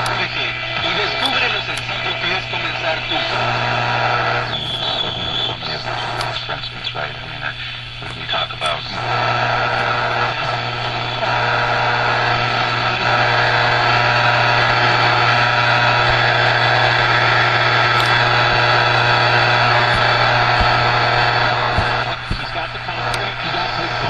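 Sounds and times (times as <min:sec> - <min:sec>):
low hum: 0:00.0 - 0:24.0
radio static hiss: 0:00.0 - 0:24.0
faint whistle tones: 0:04.4 - 0:05.8.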